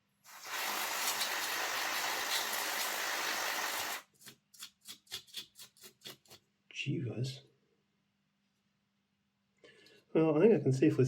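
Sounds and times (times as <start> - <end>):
aerosol spray hissing: 0.3 - 4.0.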